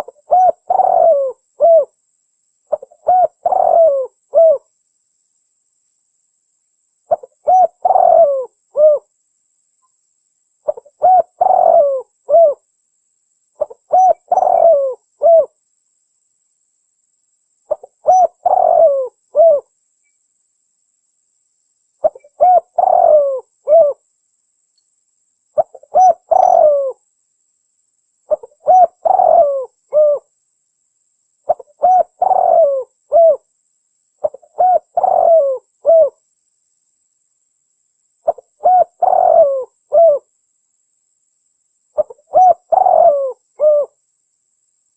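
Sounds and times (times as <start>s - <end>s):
dove cooing: 0.0s - 2.0s, 2.7s - 4.7s, 7.1s - 9.1s, 10.6s - 12.6s, 13.6s - 15.6s, 17.7s - 19.7s, 22.0s - 24.0s, 25.6s - 27.0s, 28.3s - 30.3s, 31.5s - 33.5s, 34.2s - 36.2s, 38.2s - 40.3s, 42.0s - 44.0s.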